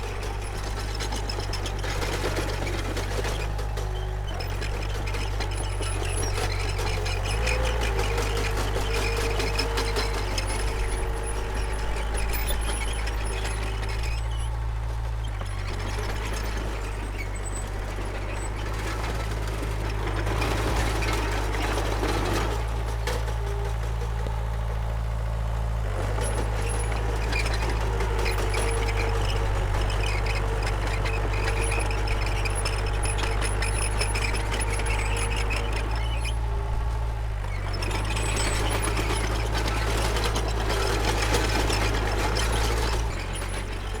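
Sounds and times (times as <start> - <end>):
bulldozer diesel engine running: 0.0 - 44.0
high metallic squeaks: 26.2 - 36.5.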